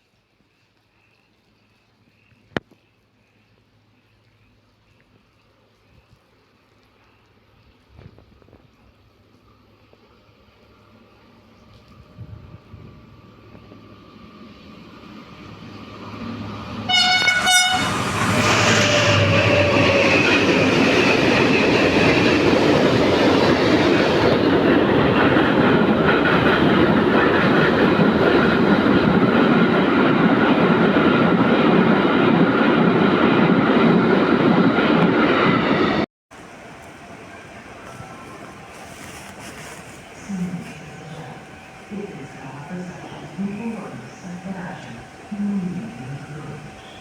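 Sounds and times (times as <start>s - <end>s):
train wheels rumbling on rails: 11.8s - 47.0s
train horn blast: 16.8s - 20.2s.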